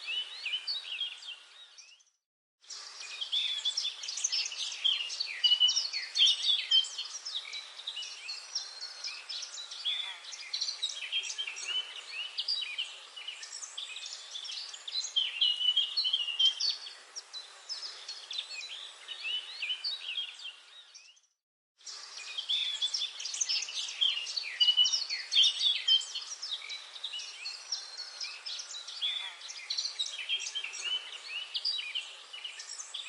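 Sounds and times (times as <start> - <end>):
songbirds chirping and trilling: 0.0 - 33.0
faint steady hiss: 21.8 - 33.0.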